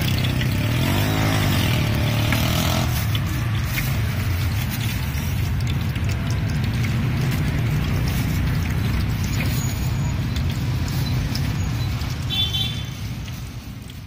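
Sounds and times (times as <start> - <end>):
low rumble of passing vehicles: 0.0 - 14.0.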